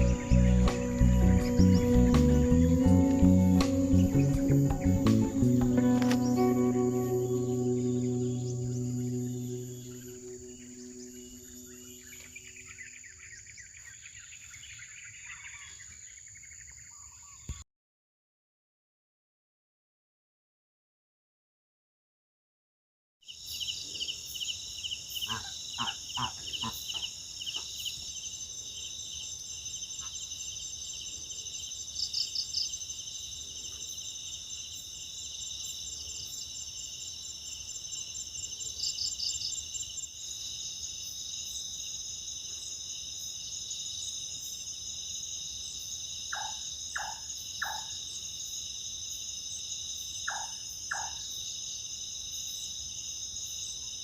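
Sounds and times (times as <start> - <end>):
crickets trilling: 0.0 - 17.4, 23.3 - 54.0
night bird call notes: 0.0 - 17.6, 24.9 - 27.9, 46.3 - 48.0, 50.3 - 51.2.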